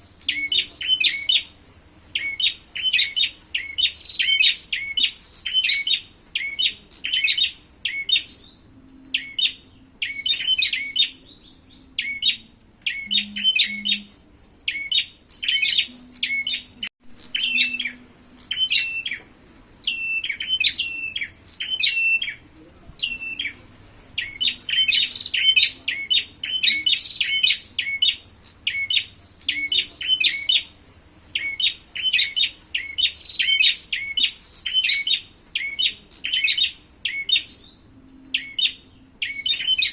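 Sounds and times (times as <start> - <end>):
high sharp bird chirps: 0.2 - 19.2.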